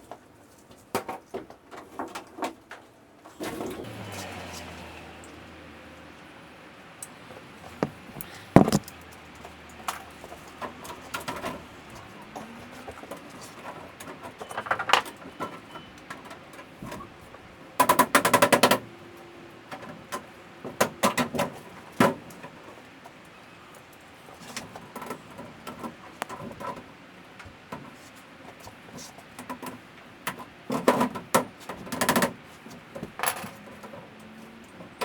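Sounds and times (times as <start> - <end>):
knocks and clicks of hand tools: 7.8 - 9.0.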